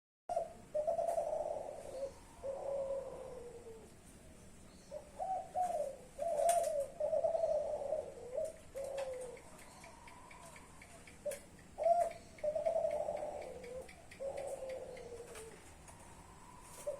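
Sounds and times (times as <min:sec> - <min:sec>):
dove cooing: 0:00.3 - 0:16.9
faint clicks: 0:08.4 - 0:16.1.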